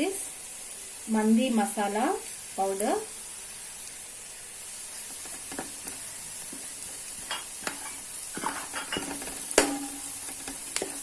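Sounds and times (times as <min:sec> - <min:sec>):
onions sizzling in a pan: 0:00.0 - 0:11.0
spatula scraping a pan: 0:05.1 - 0:11.0.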